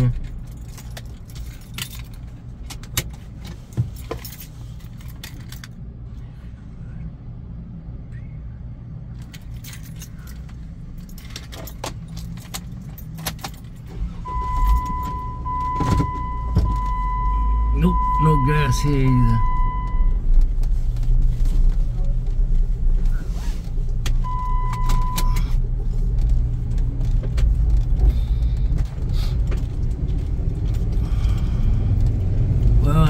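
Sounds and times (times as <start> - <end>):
light clicks and jingling rattles: 0.0 - 5.8, 9.2 - 14.0
car engine rumble: 0.0 - 33.0
electronic warning beep: 14.2 - 20.2, 24.2 - 25.5.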